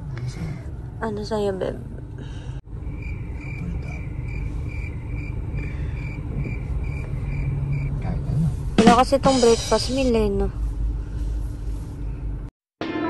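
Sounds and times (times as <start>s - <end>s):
car engine idling: 0.0s - 12.5s.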